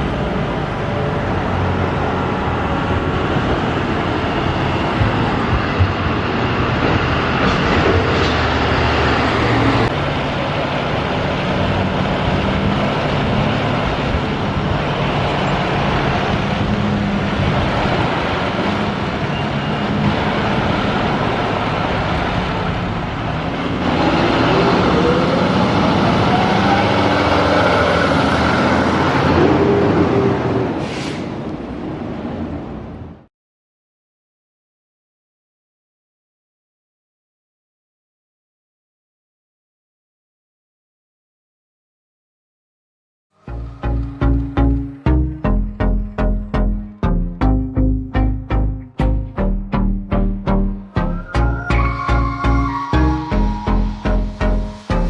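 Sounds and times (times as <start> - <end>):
heavy truck engines: 0.0 - 33.3, 43.4 - 55.0
road noise: 0.0 - 33.3, 43.3 - 55.0
siren rising in pitch: 17.3 - 19.5, 24.0 - 30.2, 50.5 - 55.0.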